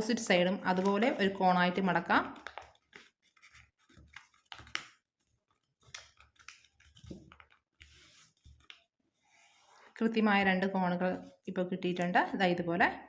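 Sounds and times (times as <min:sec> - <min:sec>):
paper rustling and crinkling: 0:00.6 - 0:01.4, 0:02.3 - 0:10.0.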